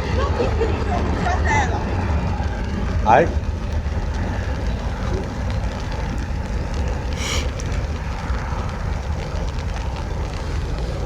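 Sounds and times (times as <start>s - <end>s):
rain pattering on an umbrella: 0.0s - 11.0s
brief hiss: 7.2s - 7.6s.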